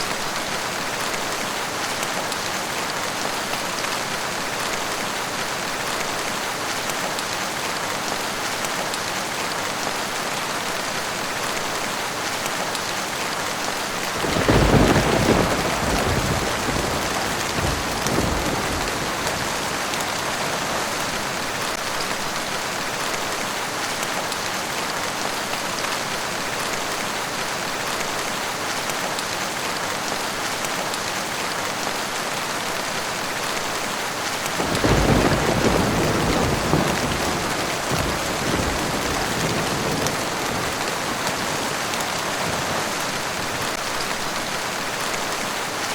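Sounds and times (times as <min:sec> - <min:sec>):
heavy rain falling: 0:00.0 - 0:45.9
thunder rumbling: 0:14.2 - 0:21.7, 0:34.6 - 0:43.5.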